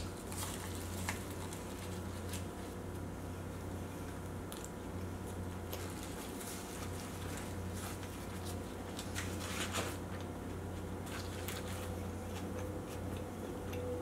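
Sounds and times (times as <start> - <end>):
foil crinkling: 0.0 - 2.9, 5.7 - 10.3, 11.0 - 12.5
low steady hum: 0.0 - 14.0.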